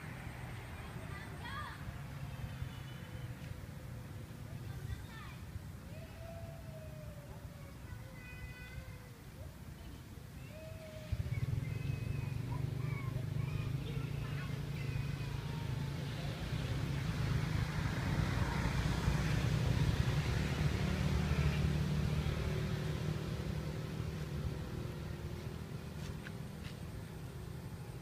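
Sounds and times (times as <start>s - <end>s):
vehicle engine passing by: 10.8s - 28.0s.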